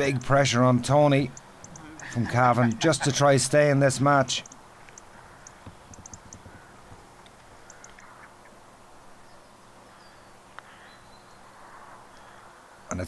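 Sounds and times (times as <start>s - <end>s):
birds chirping and calling: 5.1s - 7.0s.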